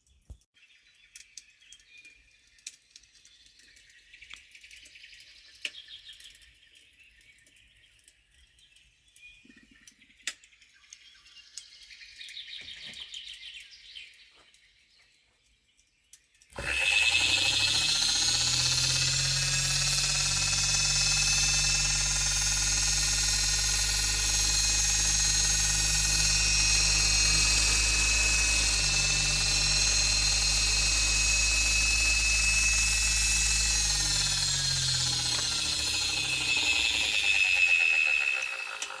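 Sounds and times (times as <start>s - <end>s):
motor whining: 16.5s - 39.0s.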